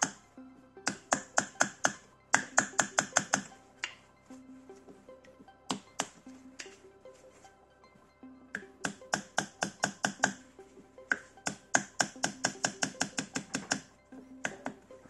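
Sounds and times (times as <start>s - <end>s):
sharp tapping on copper coils: 0.0s - 4.0s, 5.7s - 6.8s, 8.5s - 10.4s, 11.1s - 14.8s.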